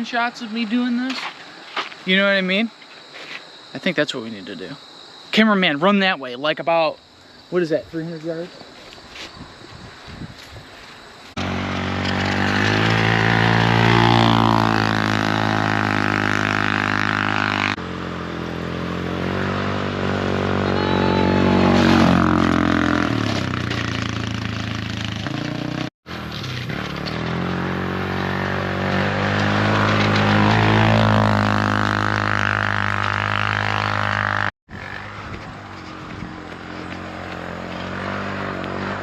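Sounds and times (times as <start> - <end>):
atv engine revving: 11.4 - 39.0.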